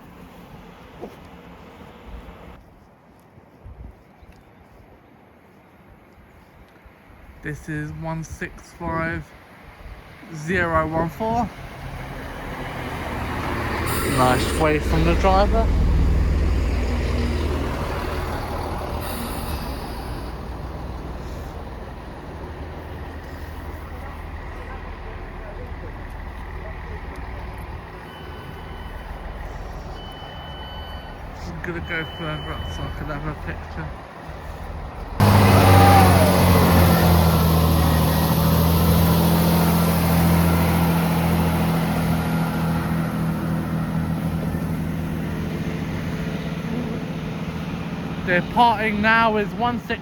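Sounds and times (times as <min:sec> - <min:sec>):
diesel train rumbling: 0:00.0 - 0:02.6, 0:07.5 - 0:50.0
air hiss: 0:13.8 - 0:14.8, 0:18.8 - 0:20.7
high whine rising in pitch: 0:17.7 - 0:20.8, 0:35.2 - 0:44.4.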